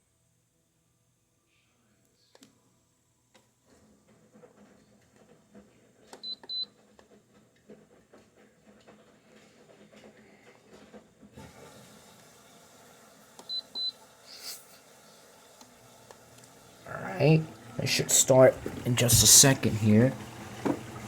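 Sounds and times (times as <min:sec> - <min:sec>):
air conditioner control panel beeps: 0:06.2 - 0:06.8, 0:13.4 - 0:14.0.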